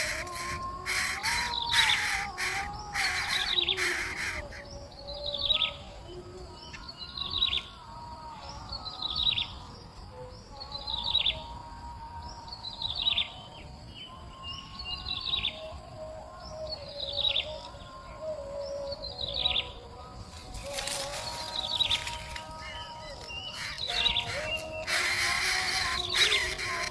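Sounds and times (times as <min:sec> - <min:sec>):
bird calling: 0:00.0 - 0:05.7, 0:20.6 - 0:26.9.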